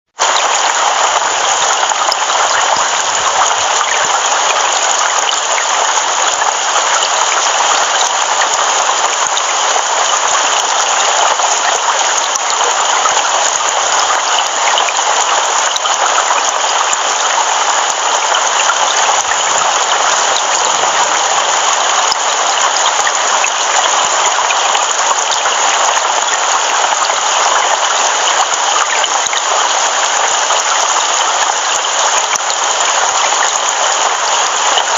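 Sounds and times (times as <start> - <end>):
heavy rain: 0.1 - 34.9.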